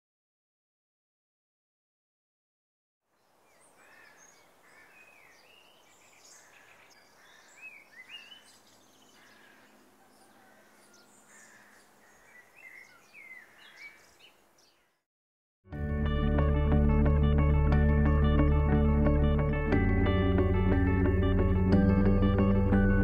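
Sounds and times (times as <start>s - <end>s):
birds chirping and whistling: 3.5s - 14.9s.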